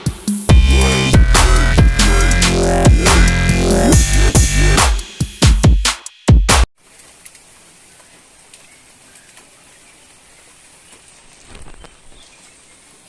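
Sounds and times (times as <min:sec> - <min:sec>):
light rain pattering: 0:06.8 - 0:13.0
rustle: 0:06.8 - 0:13.0.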